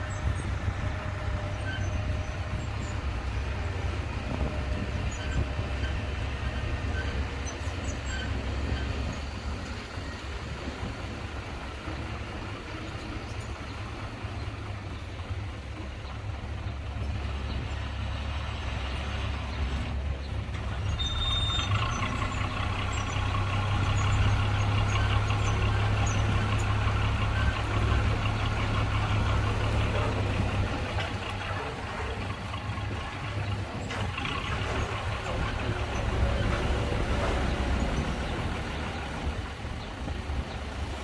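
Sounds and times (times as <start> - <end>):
diesel machinery engine: 0.0 - 41.0
high squeal: 20.9 - 22.0.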